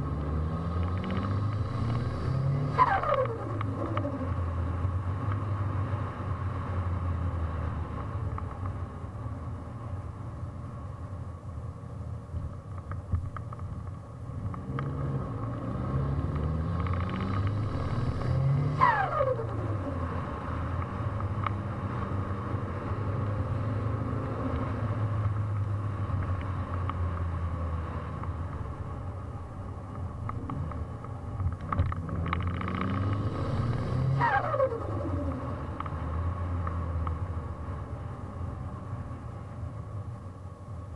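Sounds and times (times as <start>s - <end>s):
car engine revving: 0.0s - 7.4s, 14.4s - 28.8s, 31.6s - 37.6s.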